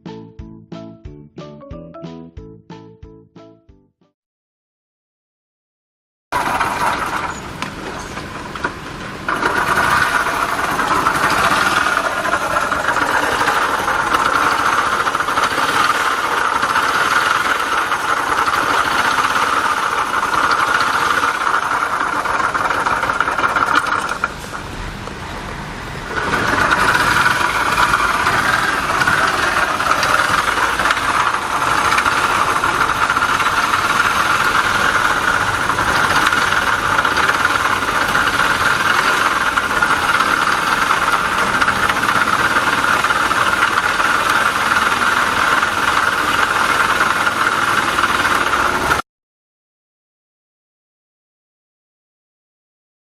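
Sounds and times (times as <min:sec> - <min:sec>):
small engine running: 0:06.4 - 0:49.0
high rubbing whine: 0:06.8 - 0:49.0.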